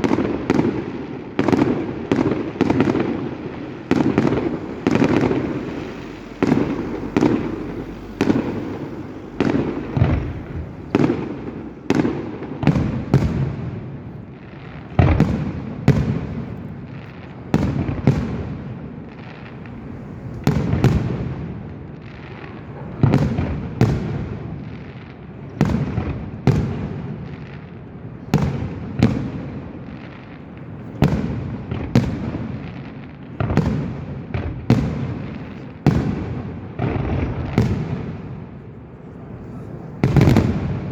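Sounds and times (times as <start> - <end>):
fireworks bursting with bangs: 0.0 - 40.9
echoing rumble: 1.2 - 14.0, 17.8 - 21.7.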